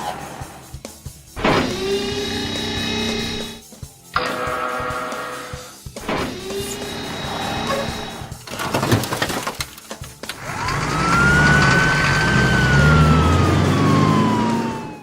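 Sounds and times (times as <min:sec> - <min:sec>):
mechanical clicks and clanks: 0:07.6 - 0:12.0.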